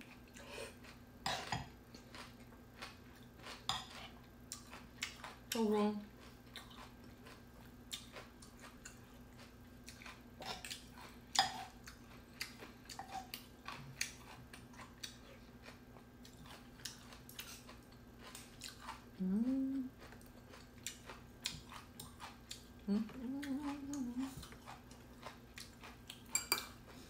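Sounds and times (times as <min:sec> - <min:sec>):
faint steady hum: 0:00.0 - 0:27.0
wet chewing and mouth clicks: 0:01.9 - 0:05.6, 0:06.2 - 0:19.0, 0:19.7 - 0:27.0
person humming mm: 0:19.2 - 0:20.0, 0:22.8 - 0:24.5.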